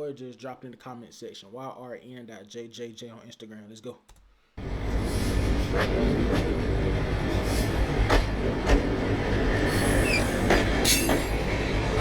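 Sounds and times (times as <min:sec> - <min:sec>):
train rumbling on rails: 0:04.6 - 0:12.0
sharp rail clicks: 0:04.9 - 0:12.0
high squeak: 0:09.7 - 0:11.4.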